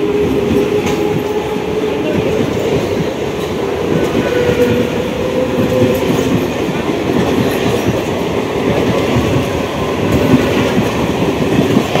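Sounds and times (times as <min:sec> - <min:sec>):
train rumbling past: 0:00.0 - 0:12.0
train wheels clattering on rails: 0:00.0 - 0:12.0.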